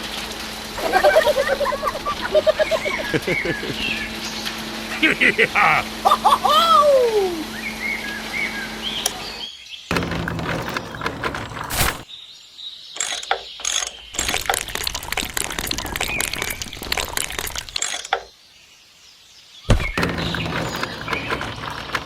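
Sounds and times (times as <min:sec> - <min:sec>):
mechanism rattling with rapid clicks: 0:13.0 - 0:18.3.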